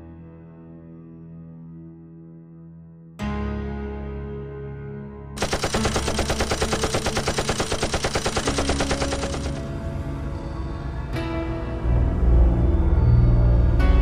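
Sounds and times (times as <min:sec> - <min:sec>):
hum of arcade machines: 0:05.4 - 0:09.7
game music: 0:05.4 - 0:09.8
rapid machine-gun fire: 0:05.4 - 0:09.8.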